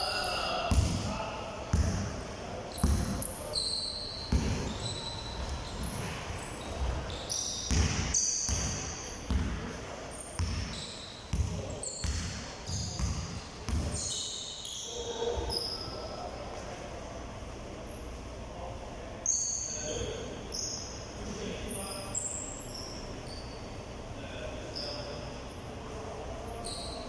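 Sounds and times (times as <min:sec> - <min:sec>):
balls bouncing on hard court: 0:00.7 - 0:01.1, 0:01.7 - 0:03.4, 0:04.3 - 0:14.2
sneakers squeaking on floor: 0:02.7 - 0:16.2, 0:19.2 - 0:21.0, 0:21.7 - 0:23.7, 0:24.7 - 0:25.6, 0:26.4 - 0:27.0.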